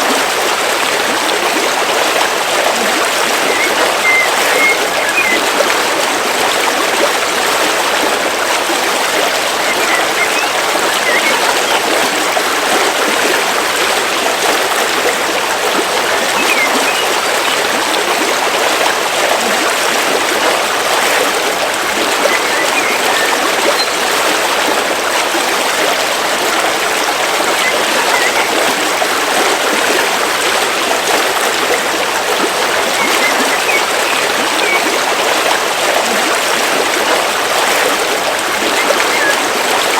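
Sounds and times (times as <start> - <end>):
river flowing over rocks: 0.0 - 39.9
faint bird chirps: 3.4 - 5.4, 9.5 - 11.8, 16.4 - 17.6, 22.2 - 24.2, 27.6 - 28.6, 32.9 - 34.9, 38.7 - 39.4.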